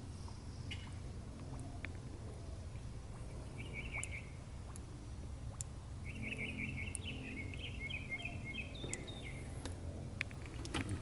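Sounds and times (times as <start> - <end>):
birds twittering: 0.0 - 4.4, 6.0 - 9.6
low background rumble: 0.0 - 11.0.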